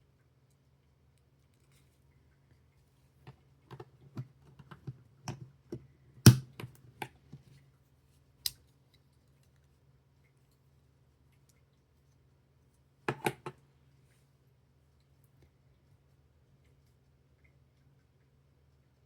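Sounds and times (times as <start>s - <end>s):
plastic brick snap: 6.3s - 6.8s.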